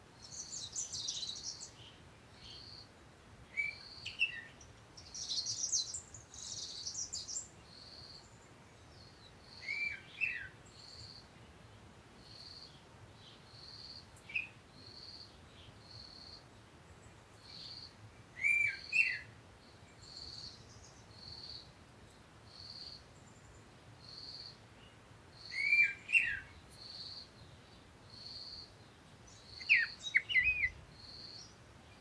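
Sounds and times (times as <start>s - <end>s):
sweeping bird call: 18.4s - 19.3s, 25.5s - 26.5s, 29.3s - 32.0s.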